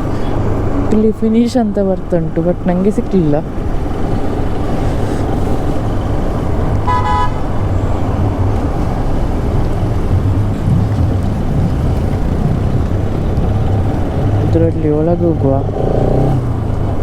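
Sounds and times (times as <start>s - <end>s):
wind rumble on microphone: 2.5s - 17.0s
vehicle horn honk: 6.8s - 7.4s
motorcycle engine running: 8.7s - 17.0s.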